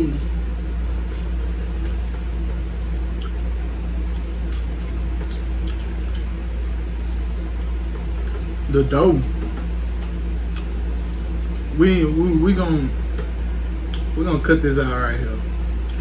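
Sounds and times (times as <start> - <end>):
people chewing pastry: 0.0 - 11.7
steady low hum: 0.0 - 16.0.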